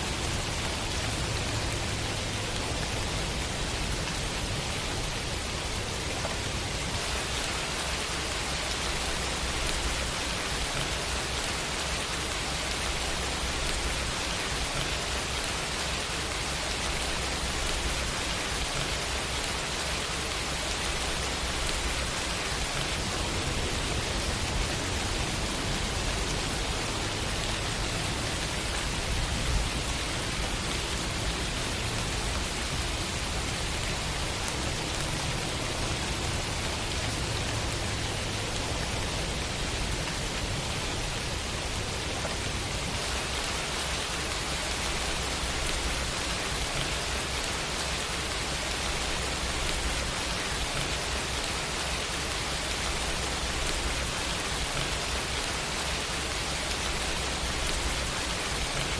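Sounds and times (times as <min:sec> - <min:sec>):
steady rain hiss: 0:00.0 - 0:58.9.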